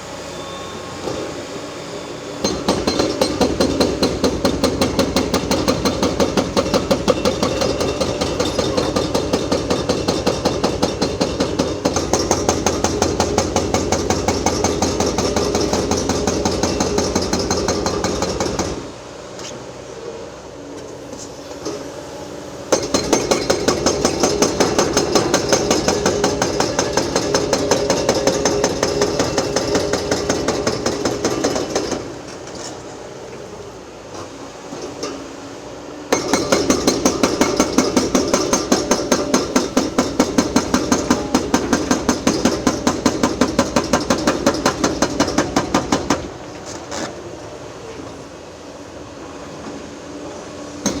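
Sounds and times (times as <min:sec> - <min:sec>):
hydraulic breaker hammering concrete: 0:02.4 - 0:18.9, 0:22.7 - 0:32.6, 0:36.1 - 0:46.4.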